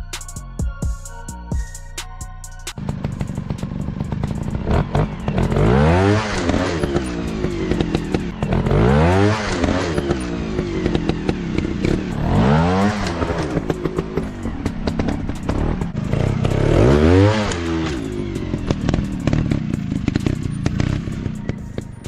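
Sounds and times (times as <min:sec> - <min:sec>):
motorcycle engine revving: 0:02.7 - 0:22.0.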